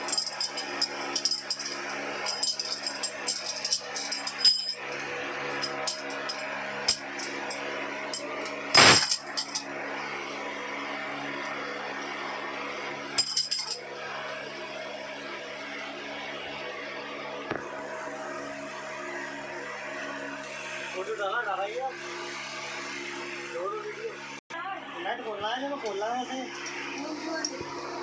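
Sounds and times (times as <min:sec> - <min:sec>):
loud metallic clatter: 0:00.0 - 0:09.7
metal tools clinking on engine parts: 0:00.0 - 0:09.7, 0:13.2 - 0:13.8
steady hum: 0:00.0 - 0:28.0.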